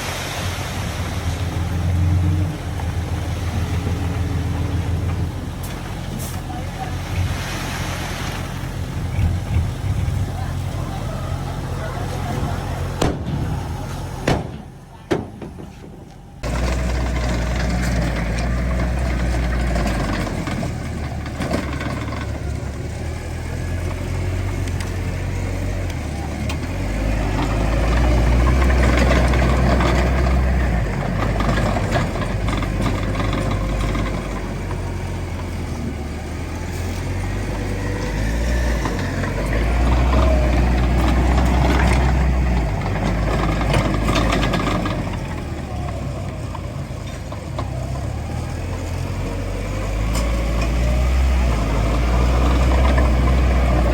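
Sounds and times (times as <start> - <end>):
heavy diesel engine rumbling: 0.0 - 53.9
knocks: 14.2 - 16.1.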